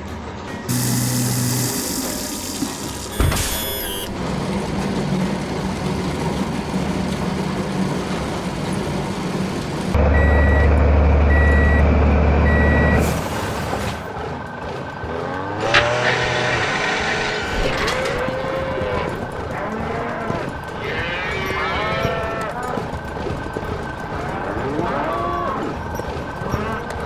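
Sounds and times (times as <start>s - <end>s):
truck engine running: 0.0s - 21.2s
reversing beeps: 3.1s - 4.1s, 10.0s - 13.1s.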